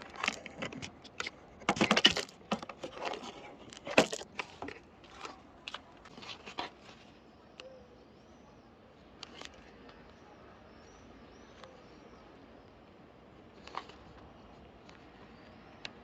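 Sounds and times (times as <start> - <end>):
faint bird chirps: 6.9 - 16.0.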